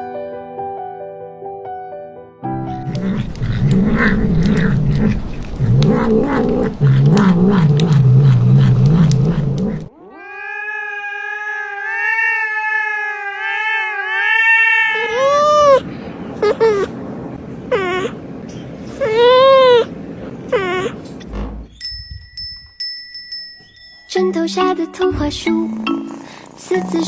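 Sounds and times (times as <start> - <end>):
cat yowling: 2.8 - 16.9, 17.7 - 18.2, 19.0 - 19.9, 20.5 - 21.0.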